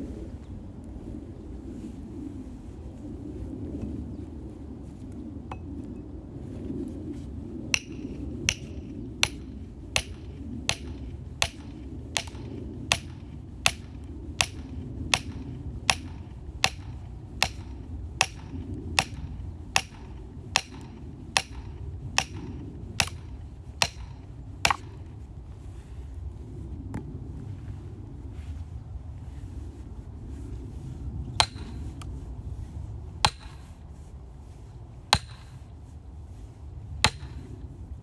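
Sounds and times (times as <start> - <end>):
low rumble: 0.0 - 33.4
hammer strikes: 7.8 - 19.2, 19.8 - 24.9.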